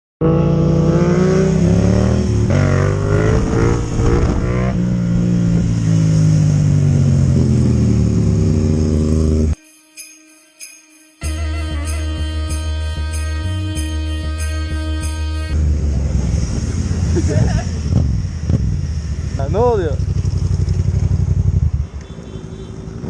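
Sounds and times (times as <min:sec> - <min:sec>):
motorcycle engine revving: 0:00.2 - 0:09.6, 0:15.5 - 0:23.0.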